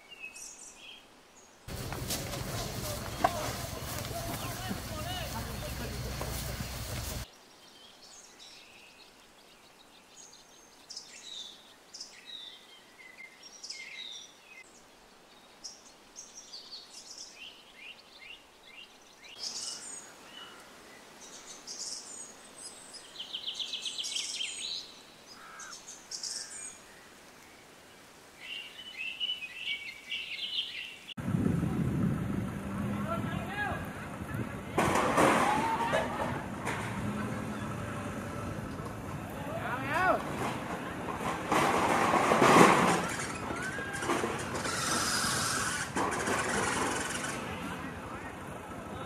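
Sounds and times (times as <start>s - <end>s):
birds chattering: 1.7s - 7.3s, 23.2s - 26.8s, 42.7s - 49.0s.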